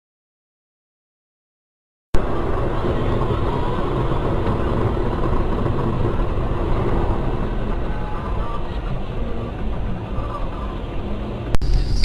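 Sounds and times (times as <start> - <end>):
car engine and road noise: 2.2 - 12.0.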